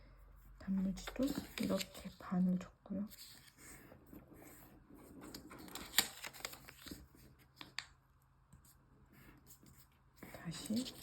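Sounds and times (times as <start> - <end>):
paper rustling and crinkling: 0.8 - 2.4, 3.1 - 8.0, 9.3 - 11.0.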